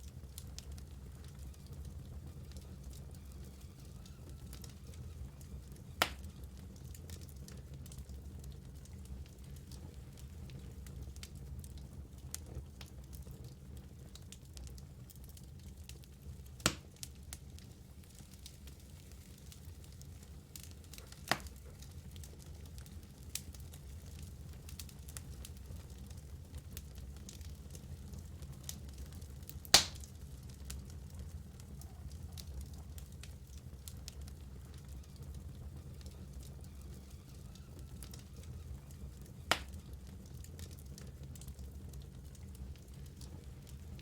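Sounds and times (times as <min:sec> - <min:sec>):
logs crackling and popping: 0:00.0 - 0:44.0
low steady fire rumble: 0:00.0 - 0:44.0
loud sharp pop from logs: 0:29.8 - 0:30.0.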